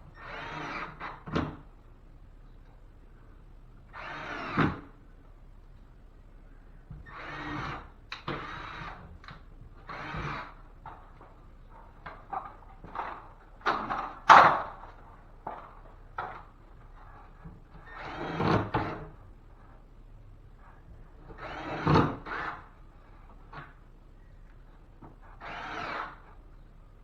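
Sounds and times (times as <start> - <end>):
cordless drill driving screws: 0.2 - 1.2, 3.9 - 4.9, 7.0 - 9.0, 9.8 - 10.6, 17.8 - 19.0, 21.4 - 22.7, 25.3 - 26.3.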